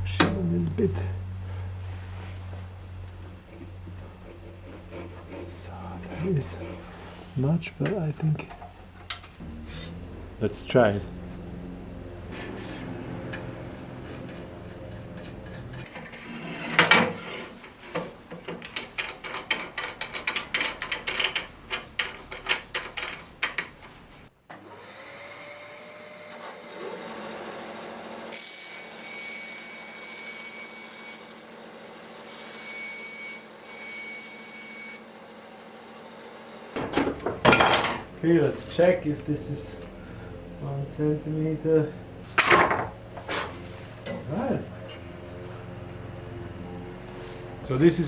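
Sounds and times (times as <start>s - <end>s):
bandsaw motor whine: 9.4s - 15.9s, 24.5s - 37.1s.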